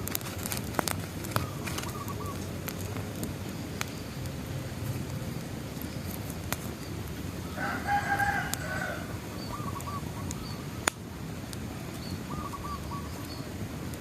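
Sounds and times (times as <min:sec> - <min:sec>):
campfire crackling: 0:00.0 - 0:14.0
faint bird chirps: 0:01.3 - 0:02.5, 0:05.8 - 0:10.9, 0:11.9 - 0:13.6
rooster crowing: 0:07.4 - 0:09.8.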